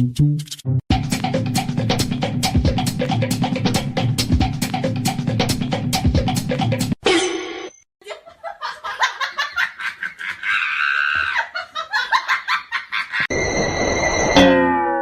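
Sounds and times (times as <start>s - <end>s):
person laughing: 8.0s - 13.3s.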